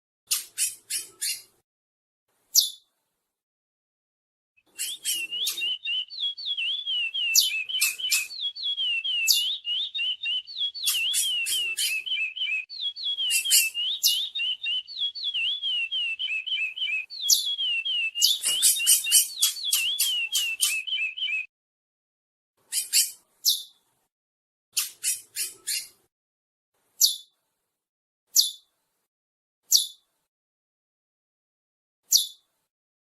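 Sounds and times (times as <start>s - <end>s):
bird singing whistled notes: 4.7s - 21.5s.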